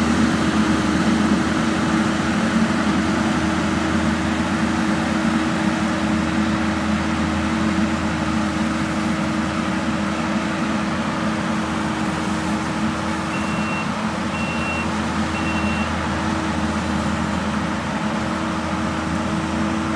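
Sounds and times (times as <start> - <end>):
skid steer engine drone: 0.0 - 19.9
reversing alarm beeps: 13.3 - 16.0.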